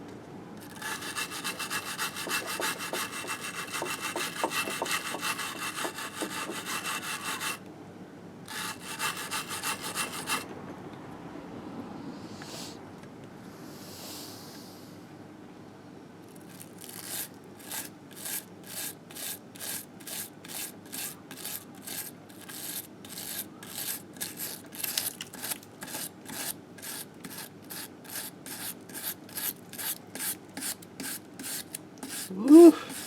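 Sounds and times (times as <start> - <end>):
hand scrubbing engine case: 0.6 - 7.6, 8.5 - 10.4.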